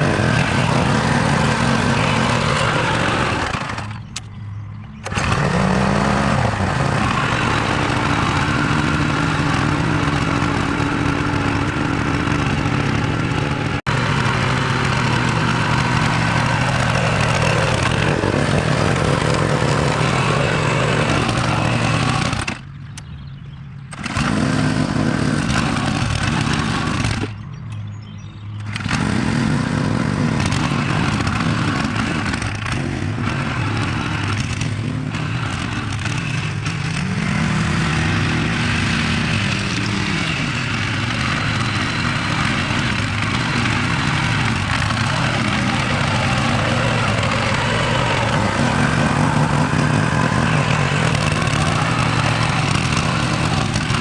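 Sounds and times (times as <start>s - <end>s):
engine humming and hissing: 0.0s - 54.0s.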